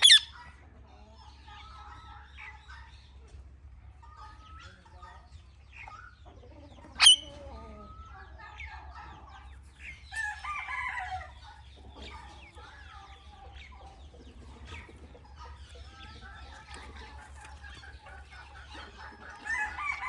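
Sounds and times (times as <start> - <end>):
parrot chirping and screeching: 0.0 - 0.4, 7.0 - 7.3.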